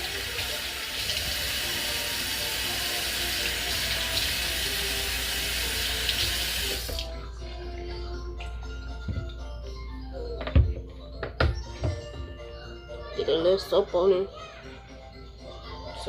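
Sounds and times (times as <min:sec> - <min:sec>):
water running from a tap: 0:00.0 - 0:07.1.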